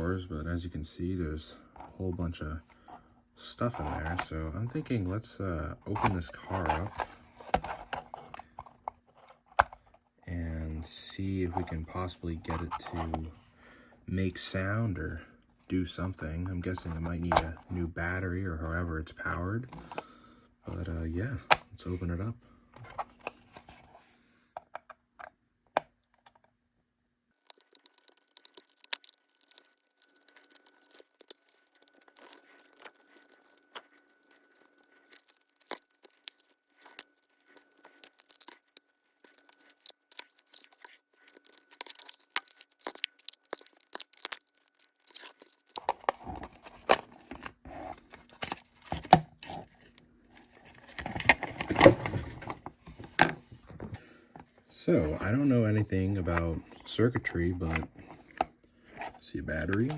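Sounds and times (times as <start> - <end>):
plastic model clicks and scrapes: 19.7 - 20.1, 27.4 - 55.3.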